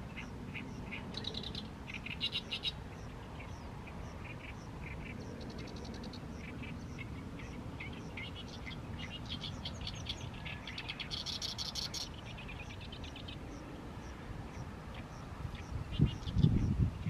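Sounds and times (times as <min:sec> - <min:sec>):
reed warbler singing: 0:00.0 - 0:17.0.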